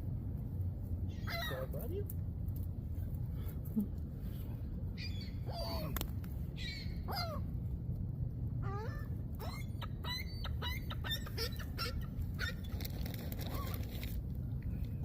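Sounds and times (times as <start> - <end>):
steady low rumble: 0.0 - 15.0
seagulls calling: 1.1 - 1.9, 5.0 - 7.5, 8.6 - 14.0.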